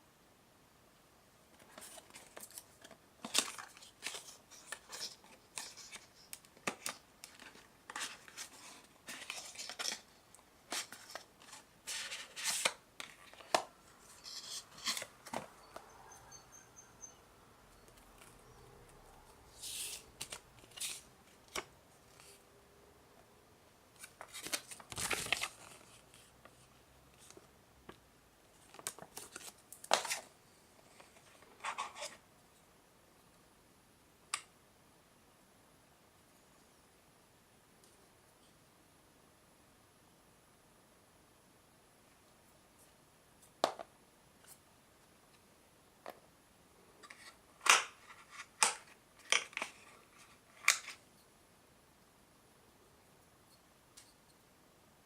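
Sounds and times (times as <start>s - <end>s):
cardboard and plastic packaging handled: 1.5s - 15.9s, 24.0s - 27.5s, 28.5s - 32.2s.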